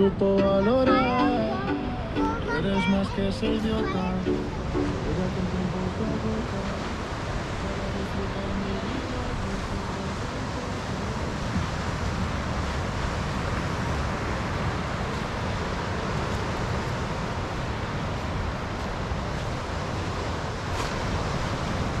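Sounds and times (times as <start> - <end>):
ocean surf: 0.0 - 22.0
wind buffeting microphone: 4.4 - 22.0.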